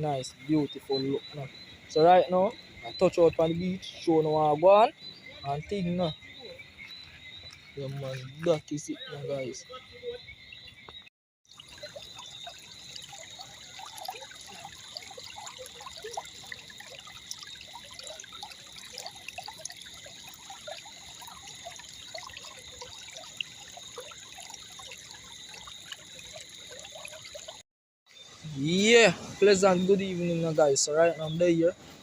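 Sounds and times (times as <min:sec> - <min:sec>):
small water splashes: 0:00.0 - 0:09.7, 0:10.8 - 0:28.4
floodwater rushing: 0:11.5 - 0:27.6.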